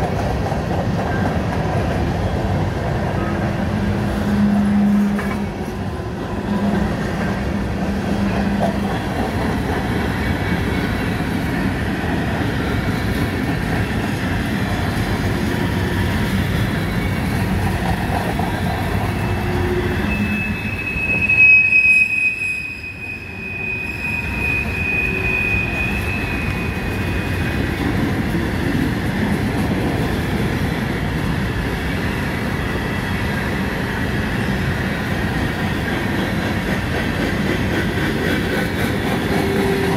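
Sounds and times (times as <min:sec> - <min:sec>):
freight train wheels rumbling on rail: 0:00.0 - 0:39.9
wheel squealing: 0:19.1 - 0:27.6.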